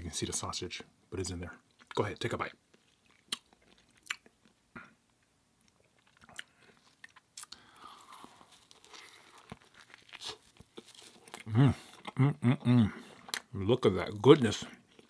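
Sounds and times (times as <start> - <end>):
person chewing: 2.7 - 13.5, 14.3 - 15.0
crisp bites into sandwich: 6.0 - 11.4.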